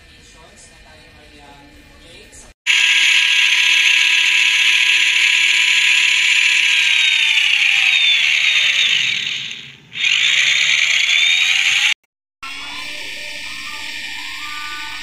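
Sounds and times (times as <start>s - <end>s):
small electric motor whining: 2.7s - 15.0s.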